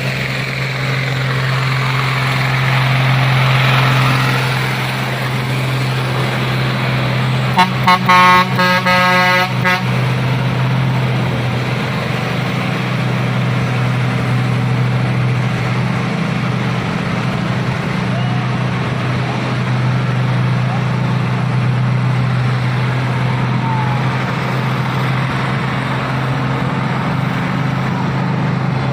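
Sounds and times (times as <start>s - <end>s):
diesel truck engine running: 0.0s - 28.9s
vehicle horn toots: 7.5s - 10.0s.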